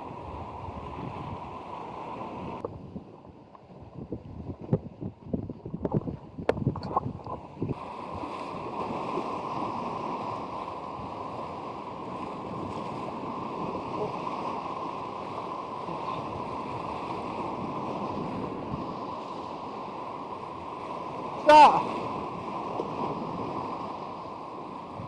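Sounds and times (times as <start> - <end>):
strong wind: 0.0 - 25.0
surf rushing: 7.7 - 25.0.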